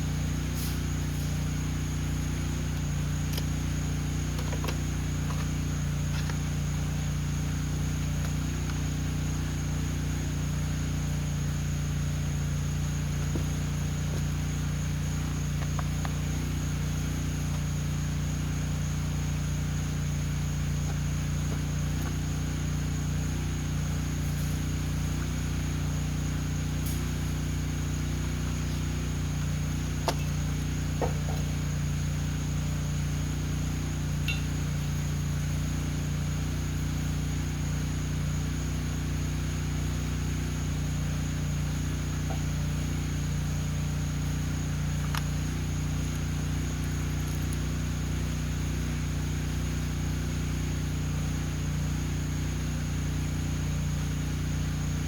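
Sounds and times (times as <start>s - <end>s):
high whine: 0.0s - 39.2s
low mechanical hum: 0.0s - 55.0s.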